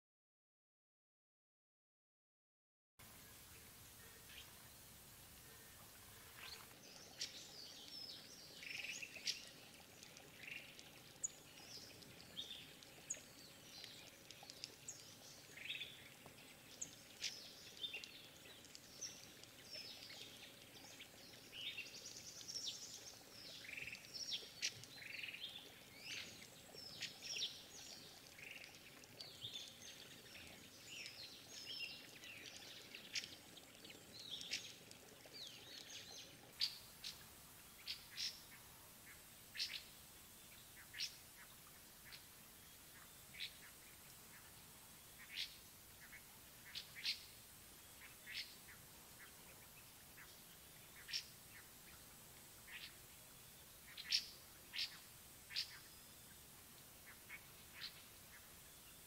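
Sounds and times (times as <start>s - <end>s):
faint steady hiss: 3.0s - 59.0s
forest birds chirping: 3.0s - 59.0s.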